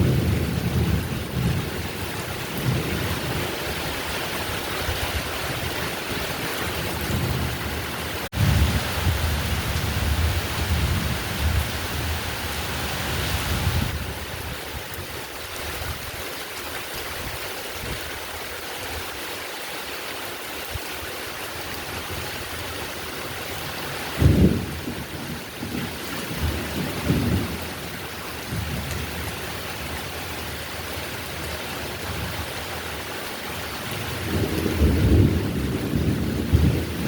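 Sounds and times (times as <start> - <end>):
thunder rumbling: 0.0 - 14.5, 24.2 - 29.4, 34.0 - 37.0
heavy rain falling: 0.0 - 37.0.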